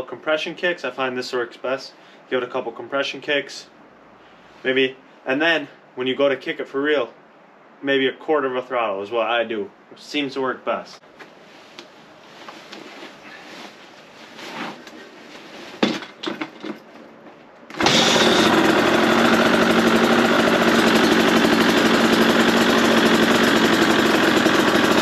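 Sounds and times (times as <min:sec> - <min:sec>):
dirt bike engine running: 0:17.8 - 0:25.0.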